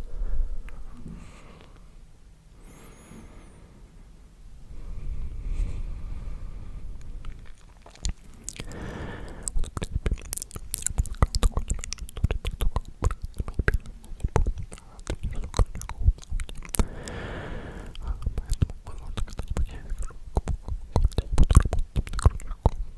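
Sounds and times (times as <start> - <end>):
breathy whisper: 2.6 - 21.4
wet lip and tongue clicks: 7.0 - 22.9.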